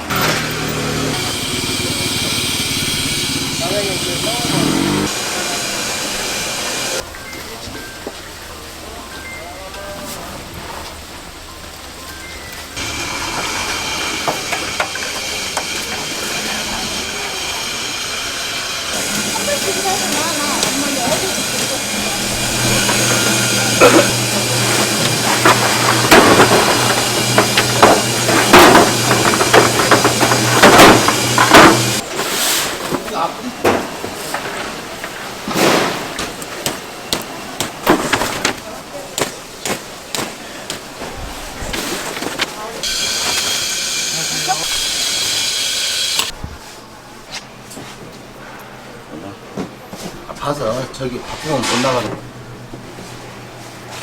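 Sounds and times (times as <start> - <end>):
kitchen knocks and clatter: 22.9 - 32.0
hot oil sizzling in fryer: 42.8 - 46.3.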